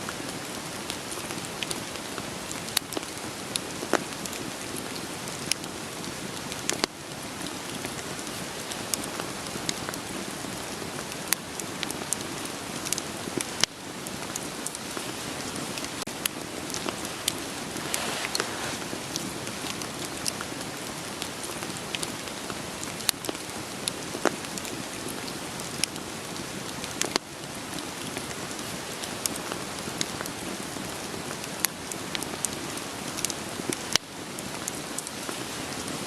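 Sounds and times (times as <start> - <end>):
steady rain falling: 0.0 - 36.0
wood fire crackling and popping: 10.8 - 28.4.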